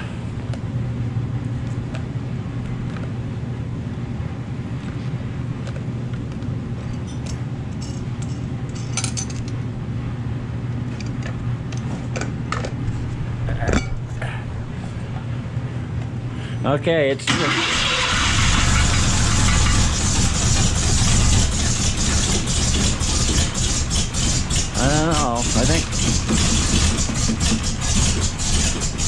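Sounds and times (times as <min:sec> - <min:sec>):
engine running: 0:17.2 - 0:29.0.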